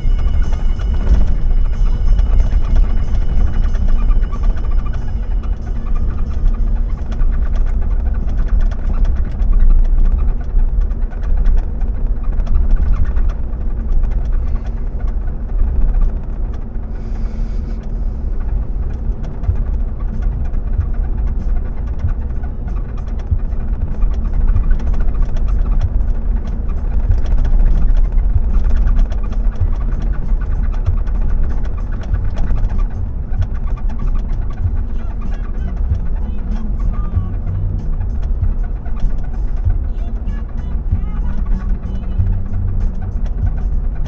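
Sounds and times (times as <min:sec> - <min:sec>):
small clicks and rattles: 0:00.0 - 0:17.0
car engine and road rumble: 0:00.0 - 0:44.0.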